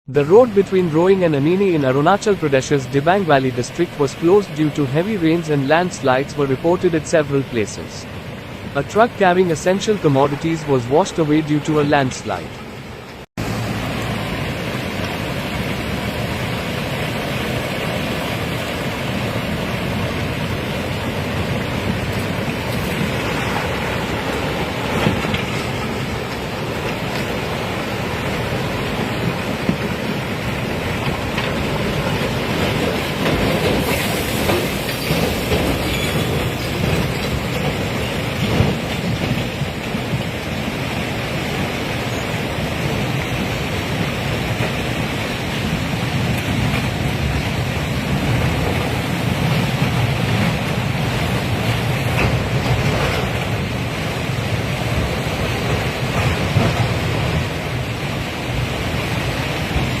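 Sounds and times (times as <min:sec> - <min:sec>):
landslide debris rushing: 0:13.5 - 1:00.0.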